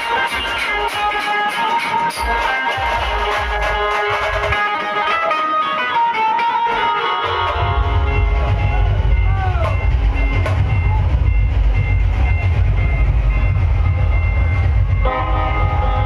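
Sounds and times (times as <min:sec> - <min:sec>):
electric banjo melody: 0:00.0 - 0:12.4
bass-heavy drum and bass music: 0:00.0 - 0:16.0.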